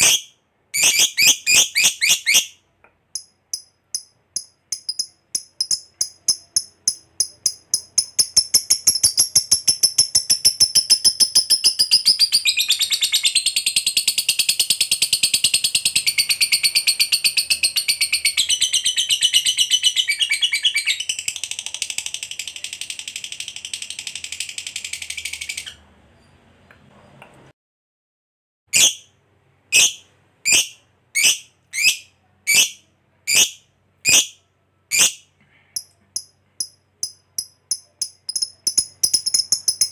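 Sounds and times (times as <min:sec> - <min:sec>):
lovebird chattering trill: 0:00.0 - 0:02.5, 0:03.2 - 0:21.3, 0:28.8 - 0:29.0, 0:29.7 - 0:35.2, 0:35.8 - 0:39.9
sharp bird chirps: 0:00.0 - 0:02.6, 0:03.2 - 0:21.5, 0:28.8 - 0:29.1, 0:29.7 - 0:35.3, 0:36.2 - 0:39.9.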